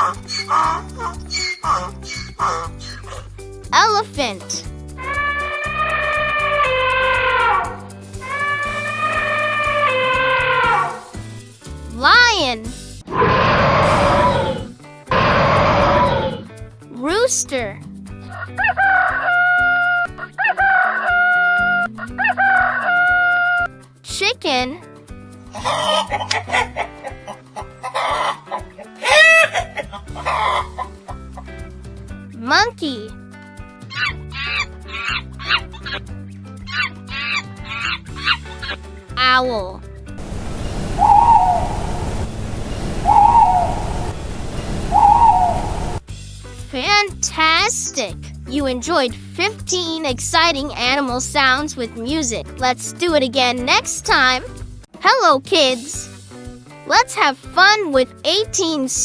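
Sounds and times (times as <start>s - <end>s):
owl hooting: 0.0s - 3.2s, 5.0s - 11.1s, 13.1s - 16.5s, 30.1s - 30.9s, 40.2s - 46.1s
background music: 0.0s - 59.0s
rooster crowing: 40.2s - 46.0s
steady low background noise: 40.2s - 46.1s.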